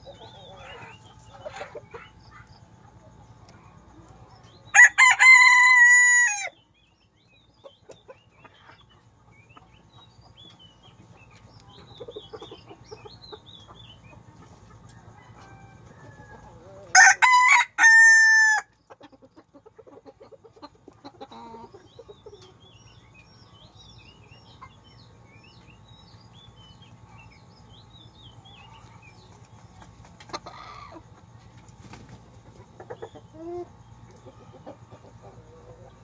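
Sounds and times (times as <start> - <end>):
chickens clucking: 0.0 - 36.0
rooster crowing: 4.7 - 6.6, 14.9 - 18.7.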